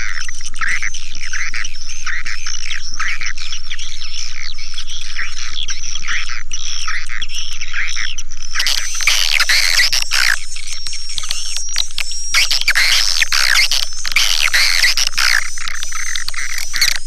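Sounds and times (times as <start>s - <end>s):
rough bird chattering: 8.6s - 17.0s
swiftlets chirping: 8.6s - 17.0s.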